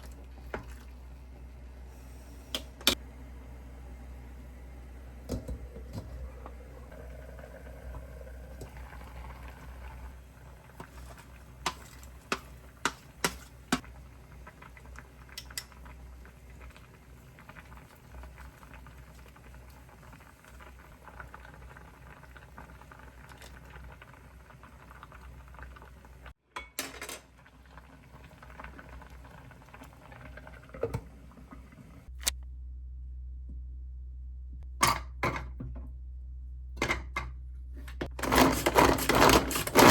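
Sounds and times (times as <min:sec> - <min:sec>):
stew bubbling in a pot: 0:00.0 - 0:01.8, 0:02.9 - 0:26.4, 0:27.2 - 0:32.1
utensils clinking on cookware: 0:26.5 - 0:27.3.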